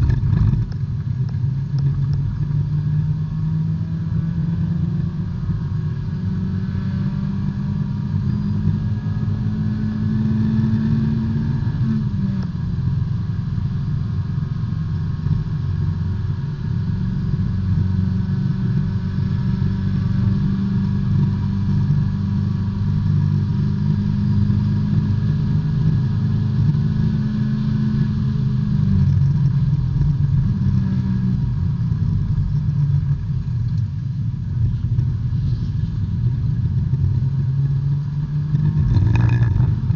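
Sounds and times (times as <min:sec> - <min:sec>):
race car engine at high revs: 0:00.0 - 0:39.9.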